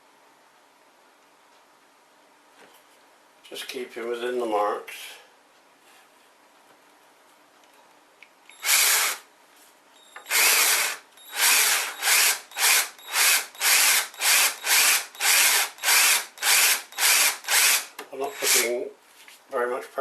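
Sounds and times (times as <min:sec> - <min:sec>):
power drill boring into wood: 0:08.5 - 0:09.2, 0:10.3 - 0:18.7.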